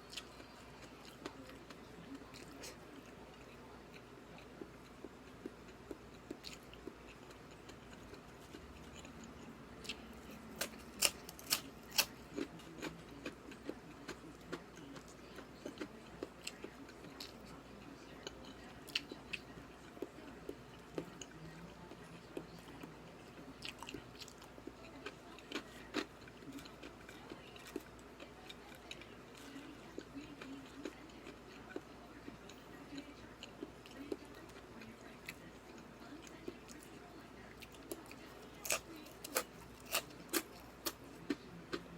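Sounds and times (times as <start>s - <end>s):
person chewing: 0.1s - 17.4s, 22.3s - 31.9s, 37.6s - 41.9s.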